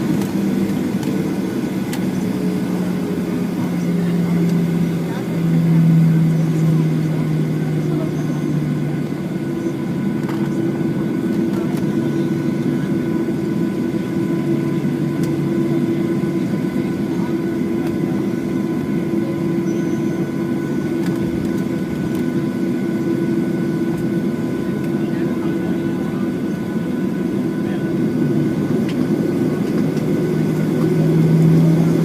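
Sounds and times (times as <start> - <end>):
jet engine hum in cabin: 0.0 - 32.0.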